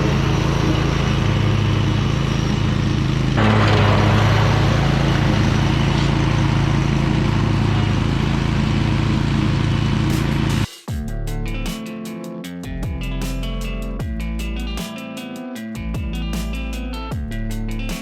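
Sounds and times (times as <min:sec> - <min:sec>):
mower engine running: 0:00.0 - 0:10.7
rushing noise: 0:00.0 - 0:10.7.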